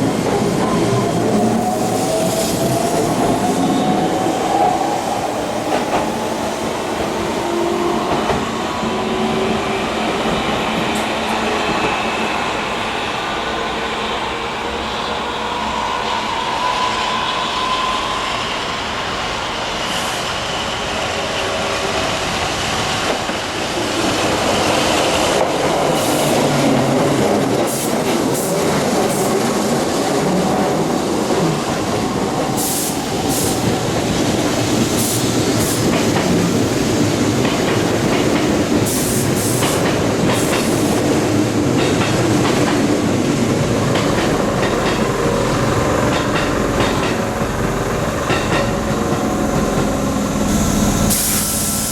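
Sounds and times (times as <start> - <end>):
wheels clicking and squealing on rails: 8.1 - 51.9
electric train wheels clattering: 22.8 - 51.9.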